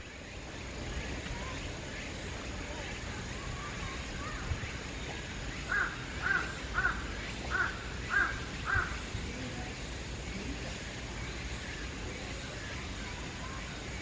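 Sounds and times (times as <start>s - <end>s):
crow cawing: 5.6s - 9.1s.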